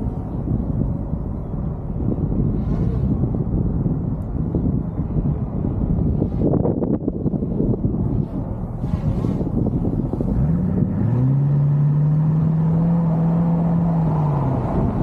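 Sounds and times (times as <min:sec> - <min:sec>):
car engine revving: 0:08.7 - 0:15.0.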